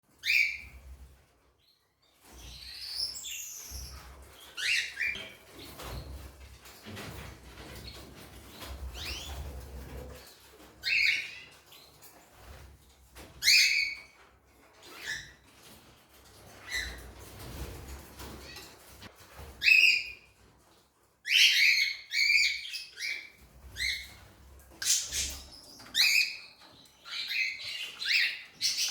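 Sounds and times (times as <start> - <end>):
pet birds chirping: 0.2 - 0.9, 1.6 - 6.2, 7.0 - 12.6, 13.4 - 14.2, 21.2 - 28.9
birds chirping: 21.3 - 28.9.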